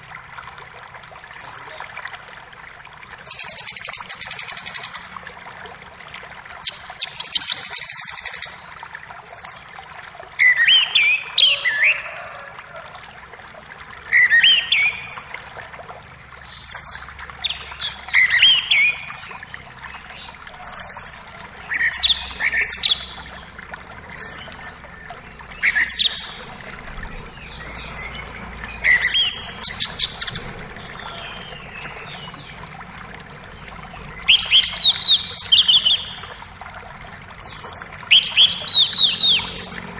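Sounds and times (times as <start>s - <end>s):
creek water hiss: 0.0s - 39.9s
songbirds chirping: 10.5s - 39.9s
bird warbling: 16.6s - 36.5s, 37.4s - 39.9s.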